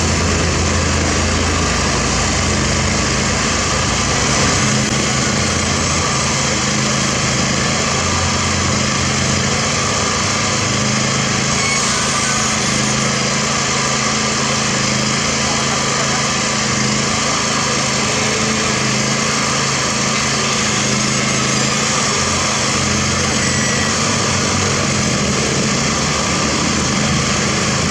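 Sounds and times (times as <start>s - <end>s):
diesel engine under load: 0.0s - 27.9s.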